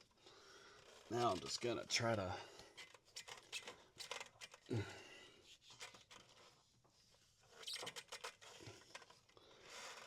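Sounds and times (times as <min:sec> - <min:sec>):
rubber belt scraping and clicking: 0:00.8 - 0:01.7, 0:02.8 - 0:04.7, 0:05.5 - 0:10.0.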